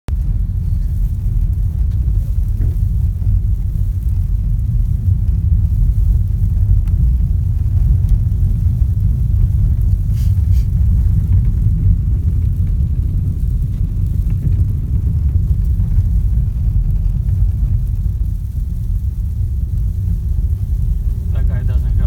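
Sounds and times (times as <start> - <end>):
car road and engine rumble: 0.1 - 22.0.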